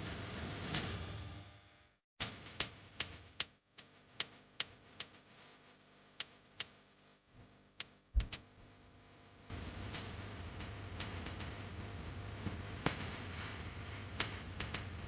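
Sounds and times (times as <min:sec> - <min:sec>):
low thud: 0:08.2 - 0:08.4.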